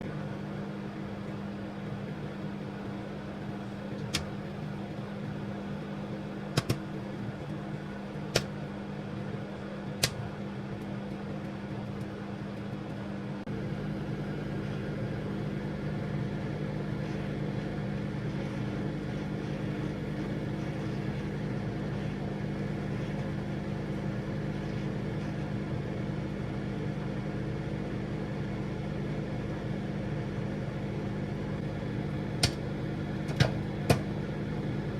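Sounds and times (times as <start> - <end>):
microwave oven humming: 0.0 - 34.9
sharp clicks: 6.6 - 6.9, 8.3 - 8.6, 10.0 - 10.2, 32.4 - 32.6.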